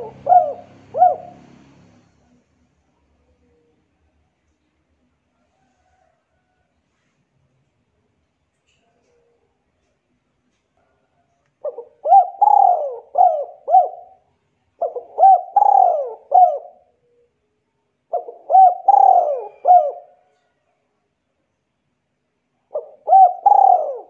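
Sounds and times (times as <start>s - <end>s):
bird calling: 0.0s - 1.6s, 11.6s - 14.2s, 14.8s - 17.3s, 18.1s - 20.1s, 22.7s - 24.0s.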